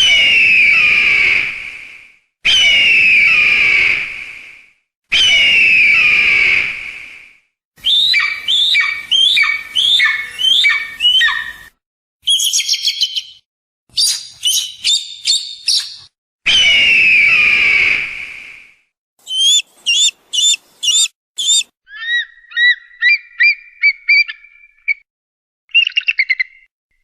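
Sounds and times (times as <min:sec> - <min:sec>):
hawk chattering: 0:19.2 - 0:21.7
hawk screaming: 0:19.2 - 0:21.7.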